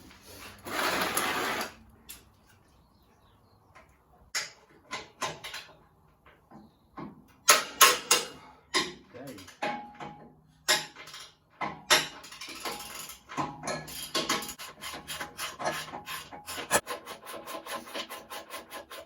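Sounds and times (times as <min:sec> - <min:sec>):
metal scraping: 0:00.0 - 0:01.8
tools clicking and clanking: 0:04.4 - 0:16.8.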